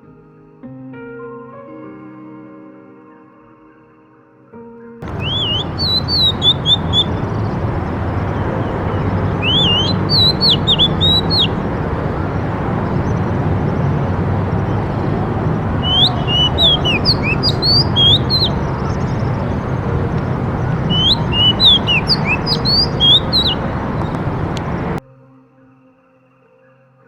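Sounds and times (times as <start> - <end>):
small bird chirping: 5.0 - 25.0
steady background noise: 5.0 - 25.0.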